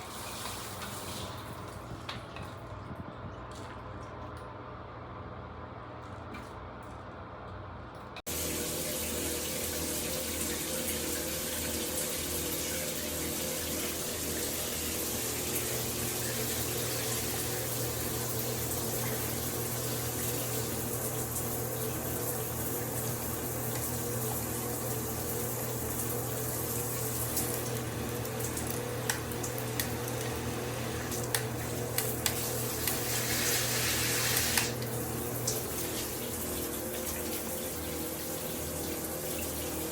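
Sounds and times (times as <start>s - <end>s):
shower head spraying water: 25.6s - 37.5s.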